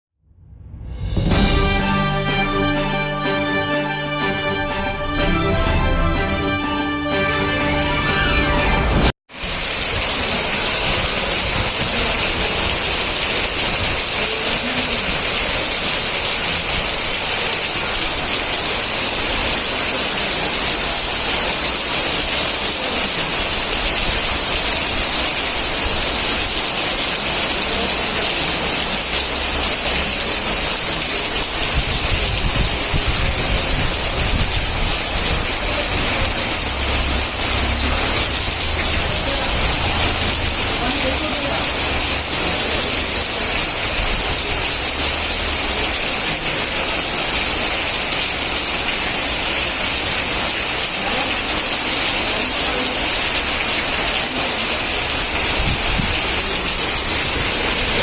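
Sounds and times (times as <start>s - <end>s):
low rumble: 0.2s - 1.9s
heavy rain pouring: 1.2s - 58.0s.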